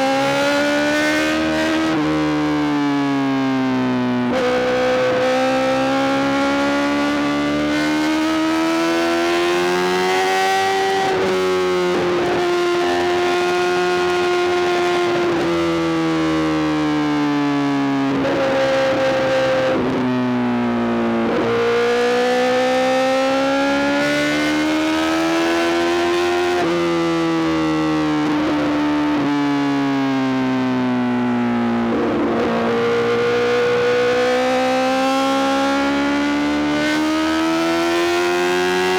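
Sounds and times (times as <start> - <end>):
motorcycle engine revving: 21.2 - 29.3, 31.8 - 38.9.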